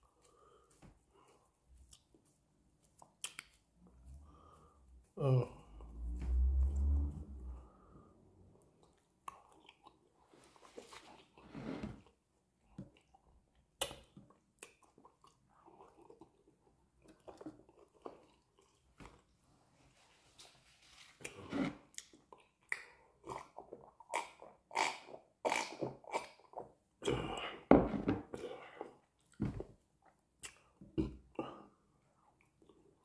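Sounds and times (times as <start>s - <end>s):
person chewing: 0.0s - 4.8s, 8.6s - 11.4s, 12.0s - 19.2s, 21.2s - 27.6s
soft mouth clicks: 3.0s - 3.6s.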